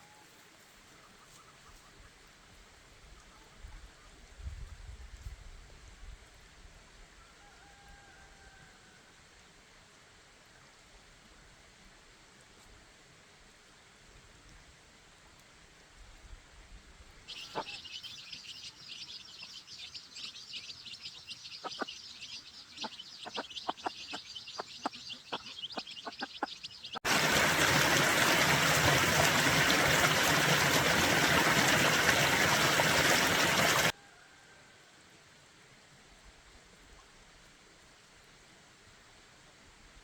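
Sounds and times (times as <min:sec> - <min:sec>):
birds chirping: 0:17.3 - 0:33.9.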